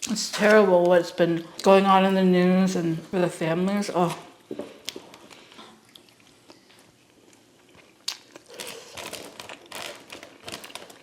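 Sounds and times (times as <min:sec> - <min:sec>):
food packaging crinkling: 0:04.9 - 0:11.0.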